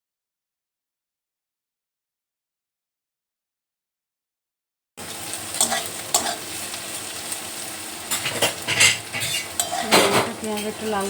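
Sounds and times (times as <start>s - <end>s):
onions sizzling in oil: 5.0s - 11.0s
spatula scraping a pan: 5.6s - 6.6s, 8.1s - 11.0s.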